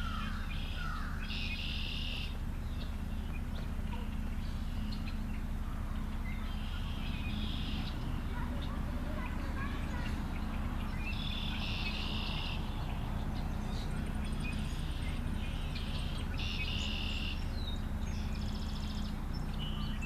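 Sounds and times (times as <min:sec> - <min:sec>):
steady low rumble: 0:00.0 - 0:20.0
buzzy trilling animal calls: 0:03.9 - 0:10.2, 0:10.9 - 0:13.0.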